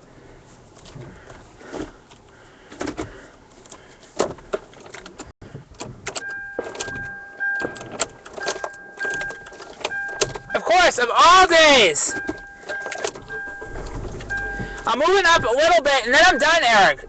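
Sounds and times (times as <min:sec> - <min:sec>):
clicks and knocks in car: 0:00.8 - 0:10.6, 0:12.1 - 0:16.7
car electronic warning tone: 0:06.2 - 0:10.7, 0:11.7 - 0:17.0.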